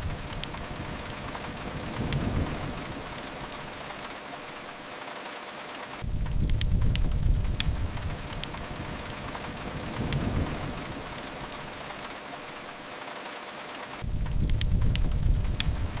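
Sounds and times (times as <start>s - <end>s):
fireplace crackles: 0.0s - 16.0s
steady rain hiss: 0.0s - 16.0s
low rumble: 6.0s - 11.6s, 14.0s - 16.0s.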